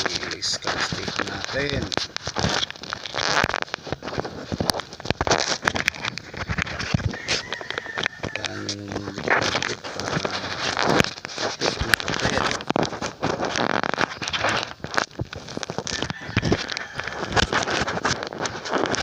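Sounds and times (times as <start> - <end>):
crackling rubbing and scraping: 0.0 - 19.0
microphone handling noise: 0.0 - 19.0.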